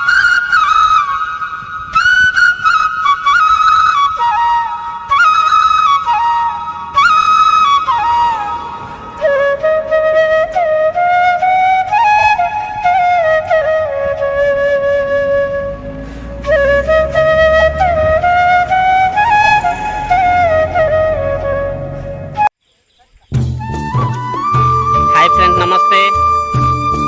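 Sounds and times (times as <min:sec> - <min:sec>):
solo flute melody: 0:00.0 - 0:22.6, 0:23.4 - 0:27.0.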